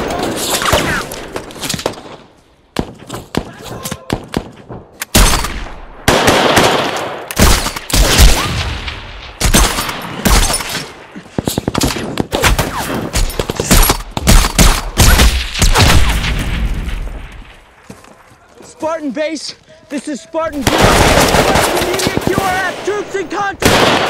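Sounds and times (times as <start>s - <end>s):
heavy gunfire: 20.6s - 23.0s, 23.6s - 24.0s.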